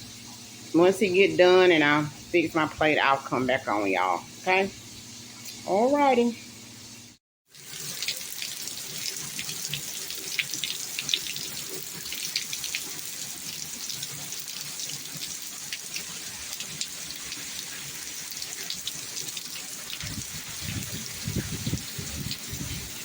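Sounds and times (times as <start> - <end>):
raindrops spattering: 7.5 - 23.0.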